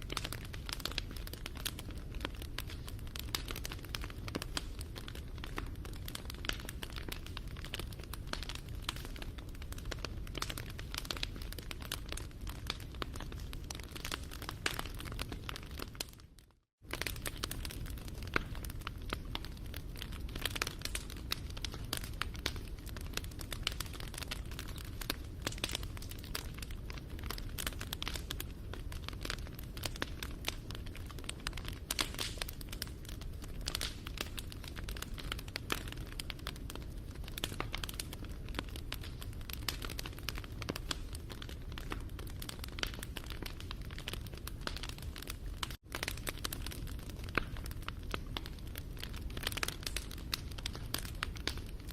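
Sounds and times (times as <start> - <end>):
low rumble of flames: 0.0 - 51.9
wood fire crackling: 0.0 - 51.9.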